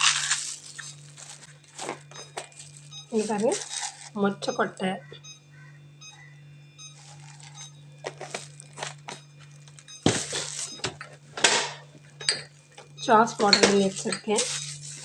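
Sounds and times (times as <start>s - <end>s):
packets rustling: 0.0s - 4.2s, 6.9s - 11.0s, 12.5s - 15.0s
refrigerator hum: 0.0s - 15.0s
containers knocking on shelves: 13.4s - 14.4s.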